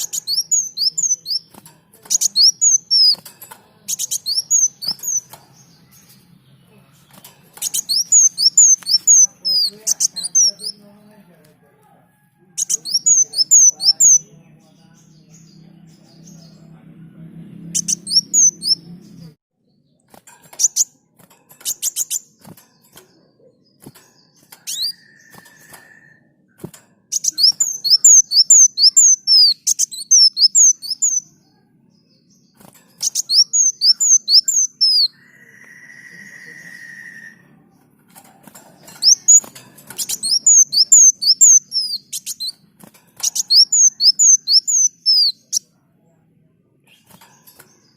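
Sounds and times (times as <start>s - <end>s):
sunbird singing high chirps: 0.0s - 11.0s, 12.6s - 16.8s, 17.6s - 19.4s, 23.1s - 26.2s, 27.1s - 37.8s, 38.8s - 45.7s
short steady whistled tone: 35.4s - 37.4s.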